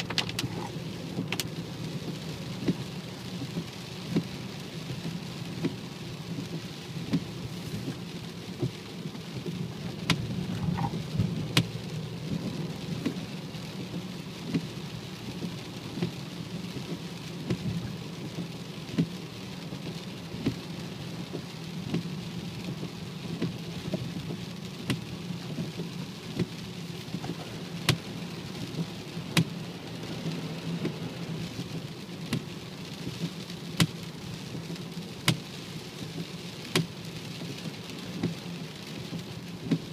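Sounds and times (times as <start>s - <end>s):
car engine droning: 9.7s - 14.0s, 26.8s - 32.1s.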